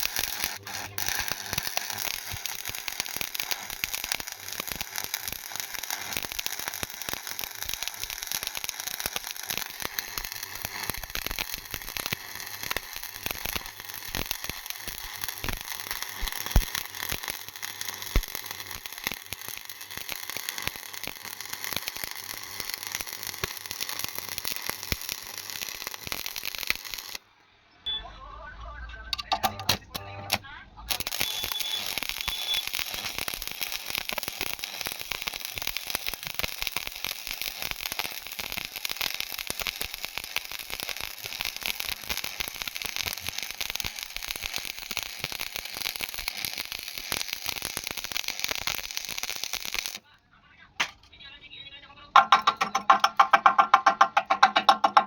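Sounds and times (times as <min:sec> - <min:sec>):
welding arc crackling: 0:00.0 - 0:27.2, 0:29.2 - 0:50.0, 0:52.2 - 0:55.0
welding arc pops: 0:00.0 - 0:27.2, 0:29.2 - 0:50.0, 0:52.2 - 0:55.0.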